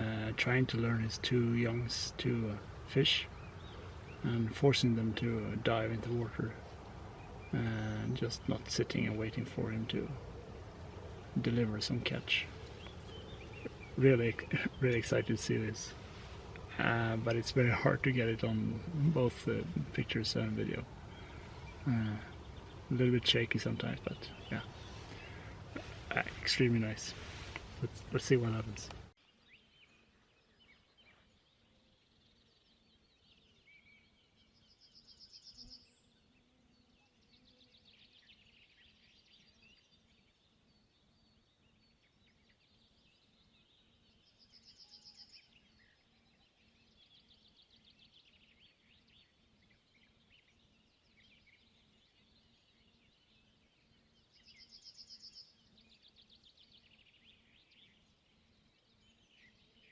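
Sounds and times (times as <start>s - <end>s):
songbird trilling: 0.0s - 36.3s, 37.4s - 59.9s
faint low hum: 0.0s - 39.1s
birds chirping: 0.0s - 59.9s.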